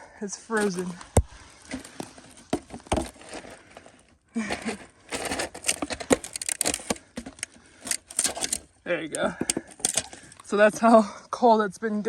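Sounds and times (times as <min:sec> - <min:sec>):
ice cracking and clinking: 0:01.6 - 0:10.8.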